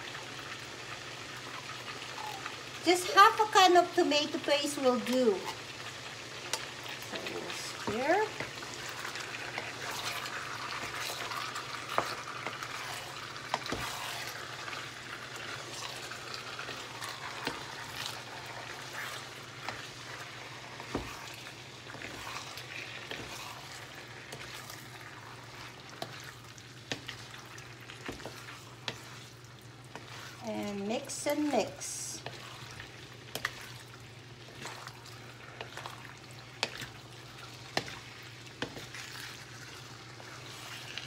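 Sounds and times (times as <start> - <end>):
food sizzling in a wok: 0.0 - 41.0
spatula tapping and scraping pan: 20.8 - 21.3, 25.9 - 27.3, 27.9 - 29.2, 36.5 - 37.0, 37.6 - 39.1.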